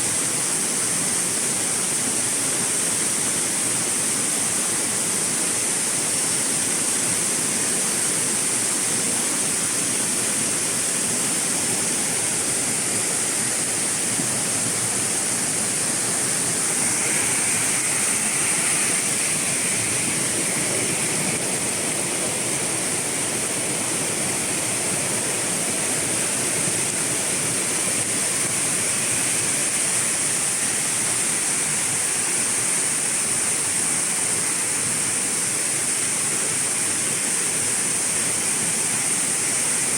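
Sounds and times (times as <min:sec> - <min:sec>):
high hiss: 0:00.0 - 0:39.9
waterfall rushing: 0:05.4 - 0:39.9.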